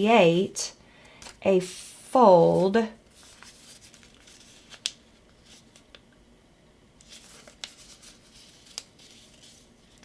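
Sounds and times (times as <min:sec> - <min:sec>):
paper rustling and crinkling: 0:02.5 - 0:06.0, 0:07.0 - 0:10.0.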